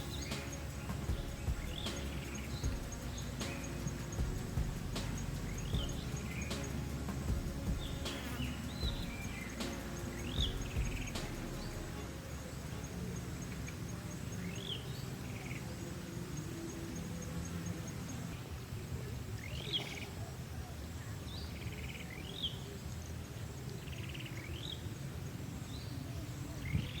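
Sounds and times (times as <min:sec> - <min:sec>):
insect ticking: 0:00.0 - 0:12.0
low outdoor rumble: 0:00.0 - 0:12.9
bird chirping: 0:00.0 - 0:15.6.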